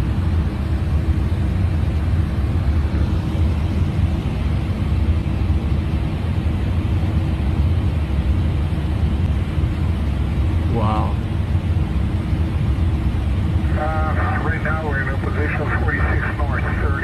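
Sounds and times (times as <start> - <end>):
airliner cockpit noise: 0.0 - 17.0.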